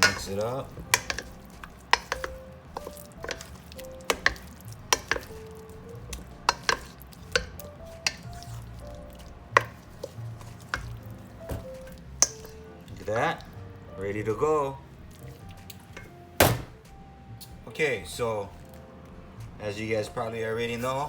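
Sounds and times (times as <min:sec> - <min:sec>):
utensil clacking against container: 0:00.0 - 0:05.5, 0:06.1 - 0:08.4, 0:09.6 - 0:12.5
raw fish being stirred: 0:00.0 - 0:16.4, 0:19.5 - 0:21.0.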